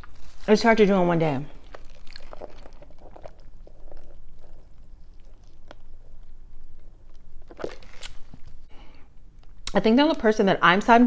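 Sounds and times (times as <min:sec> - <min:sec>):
person chewing crunchy food: 0:00.0 - 0:00.5, 0:01.5 - 0:09.7.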